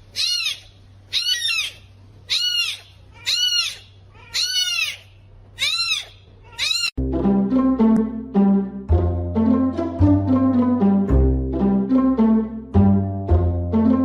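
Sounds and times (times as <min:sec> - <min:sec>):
animal high-pitched call: 0:00.1 - 0:06.9
music: 0:07.0 - 0:14.0.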